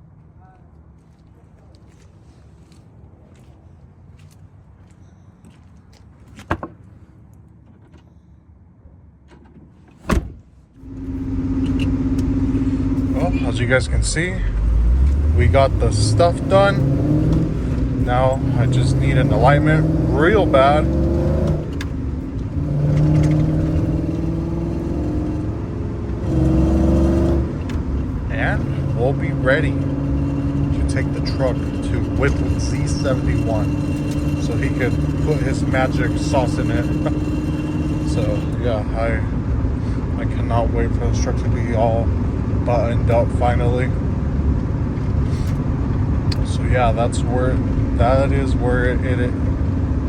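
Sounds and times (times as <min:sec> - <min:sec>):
vehicle engine droning: 0:10.7 - 0:50.0.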